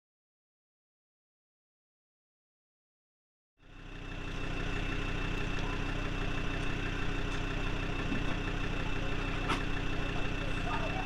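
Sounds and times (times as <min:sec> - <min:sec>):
tractor diesel engine idling: 0:03.6 - 0:11.0.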